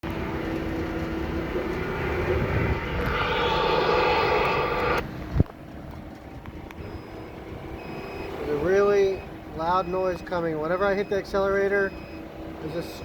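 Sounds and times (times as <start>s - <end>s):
engine revving loudly: 1.8s - 5.0s.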